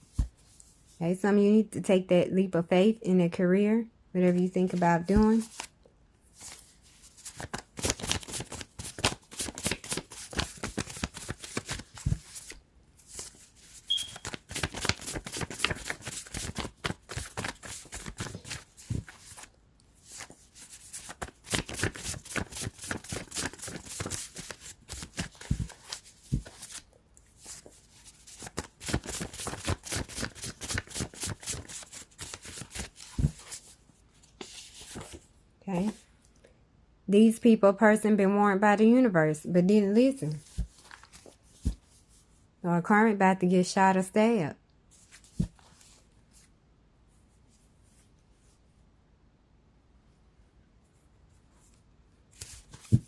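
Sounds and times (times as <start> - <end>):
cards being shuffled: 4.8 - 5.7, 6.4 - 35.2.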